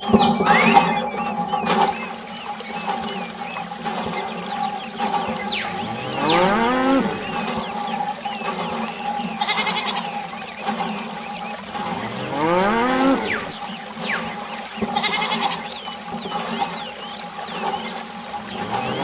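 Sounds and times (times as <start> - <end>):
high chirps: 0.2 - 1.6
cow mooing: 5.6 - 7.4, 12.0 - 13.6.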